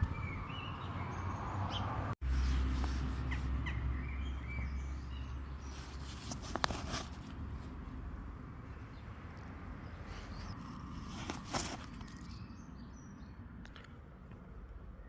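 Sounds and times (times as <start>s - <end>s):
wind rumble on microphone: 0.0s - 5.7s
birds chirping: 0.0s - 7.2s, 8.2s - 14.0s.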